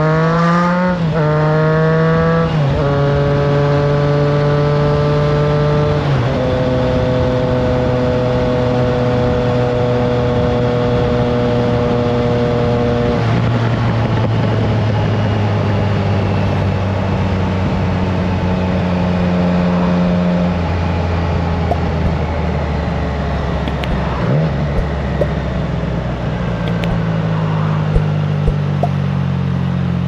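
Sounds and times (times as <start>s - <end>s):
motorcycle engine running: 10.3s - 19.2s, 21.0s - 30.0s.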